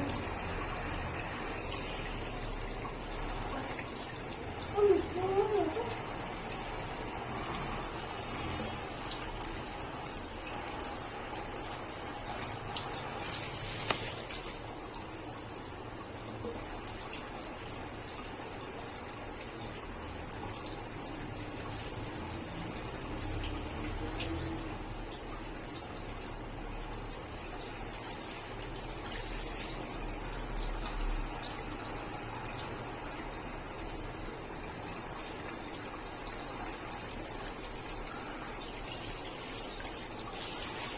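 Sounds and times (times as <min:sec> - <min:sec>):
water running and pouring: 0:00.0 - 0:40.9.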